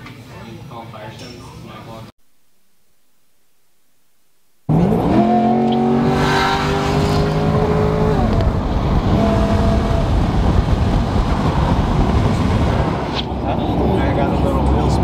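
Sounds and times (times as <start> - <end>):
car engine accelerating: 4.7 - 15.0
road and tyre rumble: 4.7 - 15.0.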